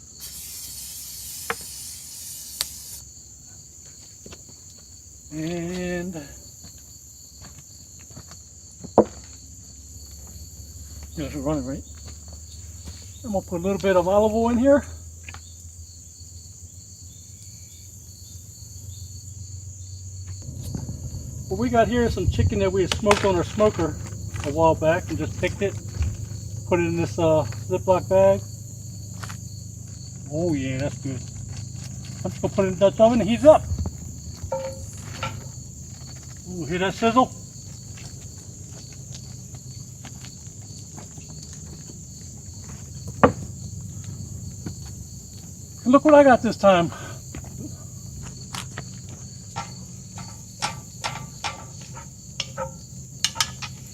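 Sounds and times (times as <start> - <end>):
crickets trilling: 0.0 - 53.9
low steady hum: 18.9 - 53.9.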